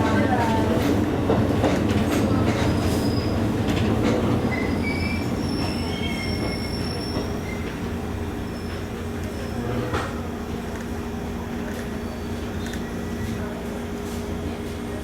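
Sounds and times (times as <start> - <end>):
train rumbling on rails: 0.0 - 15.0
high wheel squeals: 4.5 - 7.7.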